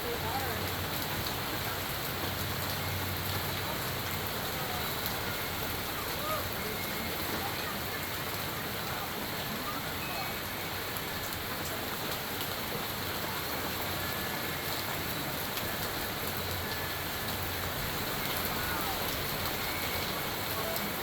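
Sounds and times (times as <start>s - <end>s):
rain falling: 0.0s - 21.0s
hailstones ticking on surfaces: 10.8s - 21.0s.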